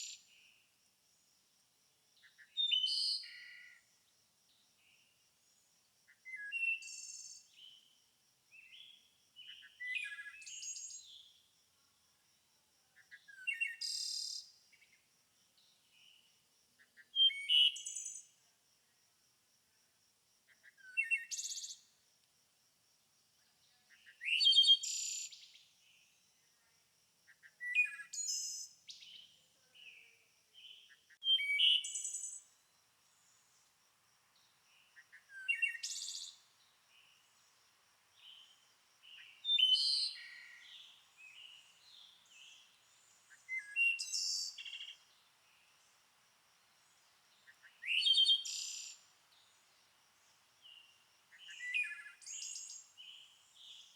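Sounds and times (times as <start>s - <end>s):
songbird singing: 0.0s - 0.8s, 2.2s - 11.6s, 12.8s - 18.4s, 20.5s - 22.0s, 23.4s - 26.7s, 27.3s - 53.9s
soft bird chirps: 8.6s - 11.5s, 27.3s - 33.7s, 34.4s - 46.0s, 46.9s - 53.9s.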